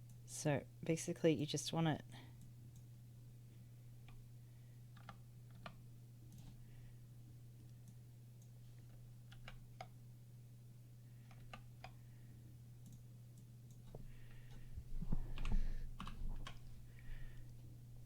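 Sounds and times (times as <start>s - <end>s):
low electrical hum: 0.0s - 18.0s
computer mouse clicks: 5.0s - 6.6s, 7.7s - 10.0s, 11.2s - 12.0s, 12.8s - 14.0s
keyboard key presses: 15.1s - 16.7s.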